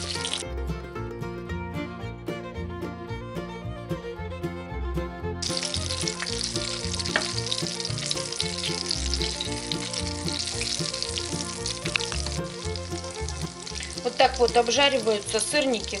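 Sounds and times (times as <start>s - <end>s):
fritters sizzling in frying pan: 0.0s - 0.4s, 5.4s - 16.0s
quiet background music: 0.0s - 16.0s
wooden spatula taps and scrapes: 7.0s - 7.4s.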